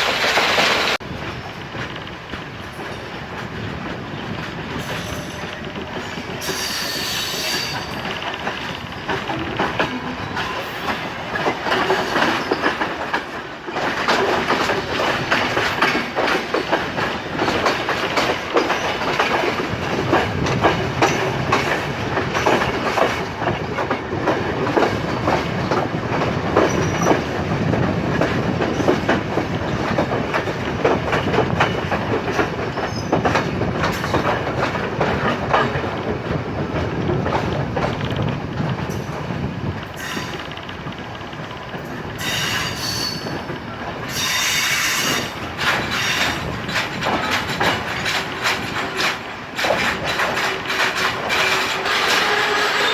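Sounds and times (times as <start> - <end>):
train wheels clattering over rail joints: 0.0 - 52.9.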